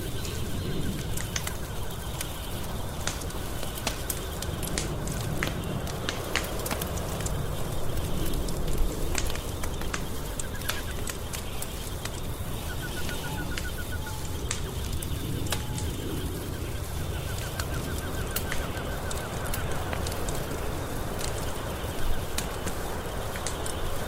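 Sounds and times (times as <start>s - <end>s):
wood fire crackling and popping: 0.0s - 24.0s
bird calling: 7.3s - 24.0s.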